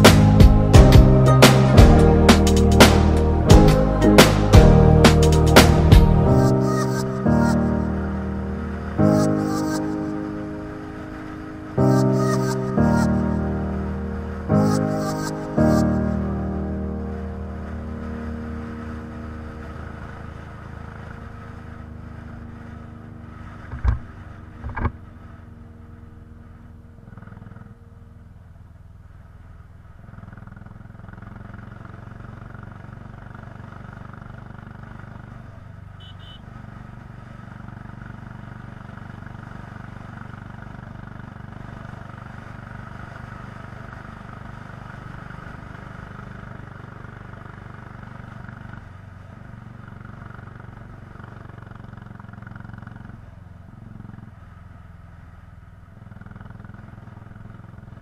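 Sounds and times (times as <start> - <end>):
motorcycle engine running: 0.0 - 58.0
sharp knocks: 23.7 - 25.0.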